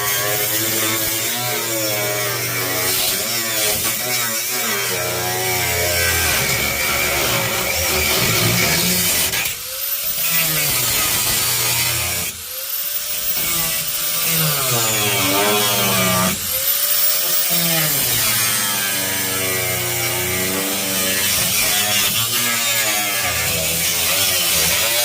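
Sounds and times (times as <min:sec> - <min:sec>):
power tool cutting sheet metal: 0:00.0 - 0:25.0.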